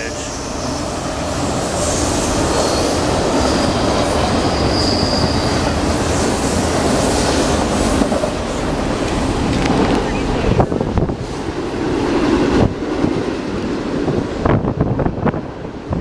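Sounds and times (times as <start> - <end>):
train wheels rumbling and rattling: 0.0 - 16.0
faint high wheel squeal: 4.4 - 5.7.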